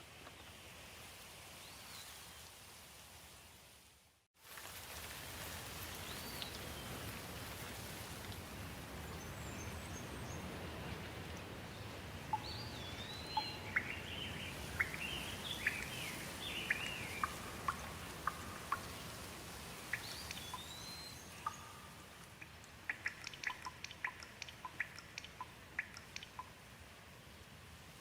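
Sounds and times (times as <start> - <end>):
steady rain falling: 0.0 - 28.0
water drips ticking: 12.3 - 26.7
bird chirping and whistling: 19.9 - 21.8.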